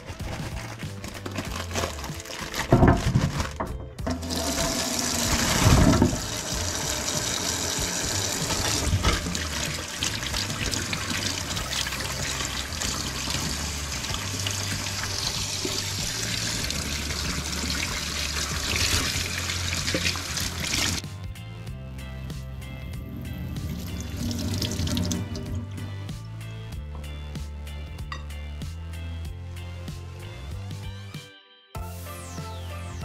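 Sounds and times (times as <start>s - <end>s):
tap water running into sink: 4.0s - 21.0s, 23.6s - 25.7s.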